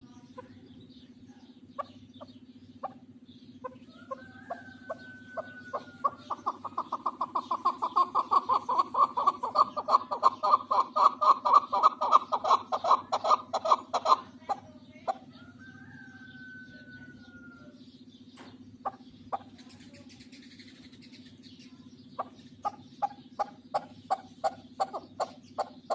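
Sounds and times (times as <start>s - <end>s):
partridge clucking call: 1.4s - 15.3s, 22.1s - 25.9s.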